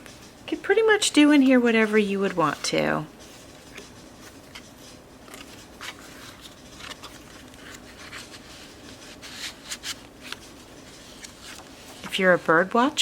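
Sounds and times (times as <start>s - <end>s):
paper pages rustling: 1.4s - 12.6s.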